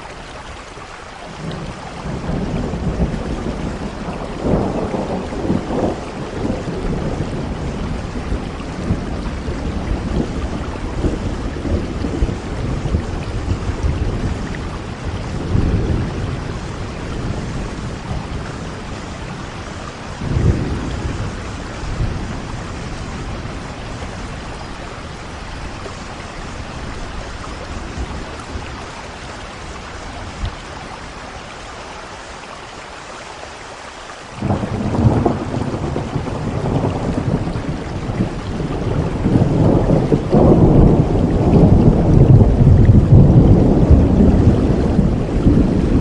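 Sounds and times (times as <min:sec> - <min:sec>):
heavy rain: 0:00.0 - 0:46.0
thunderclap: 0:01.4 - 0:24.6, 0:34.4 - 0:46.0
rumble of thunder: 0:01.4 - 0:30.7, 0:34.4 - 0:46.0.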